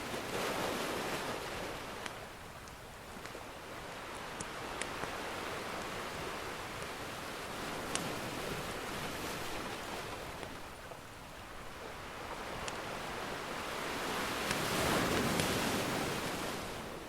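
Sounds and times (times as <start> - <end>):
ocean surf washing in: 3.5 - 17.0.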